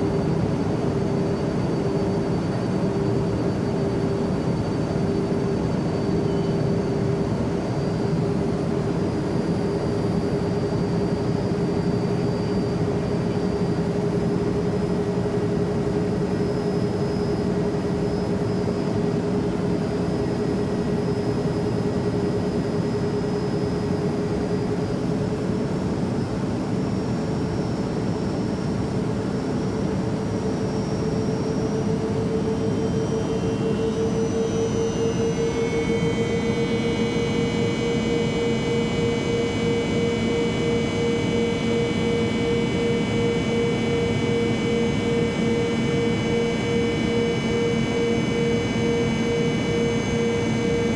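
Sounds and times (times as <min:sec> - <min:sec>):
airplane engine noise: 0:00.0 - 0:50.9.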